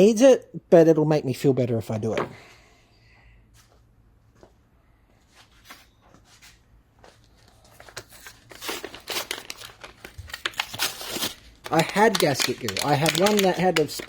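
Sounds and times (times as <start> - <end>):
packaging crinkling and tearing: 7.8 - 14.0
packaging clicks: 8.8 - 14.0.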